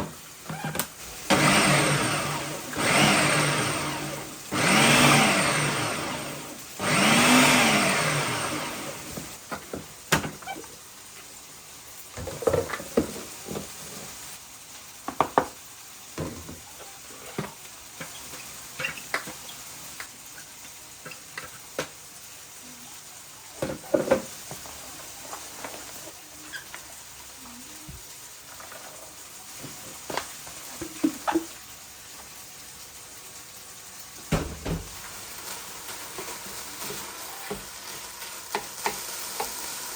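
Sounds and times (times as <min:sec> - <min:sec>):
blender motor pulsing: 0:01.3 - 0:09.3.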